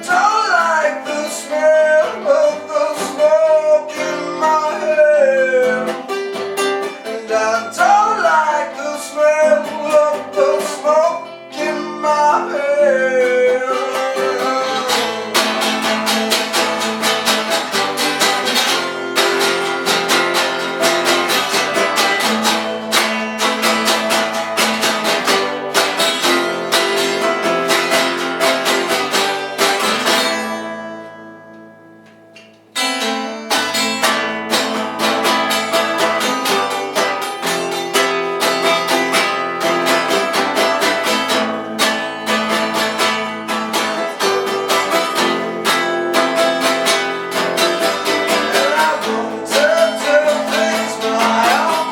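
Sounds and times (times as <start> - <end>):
band song with strummed guitars: 0.0 - 51.9.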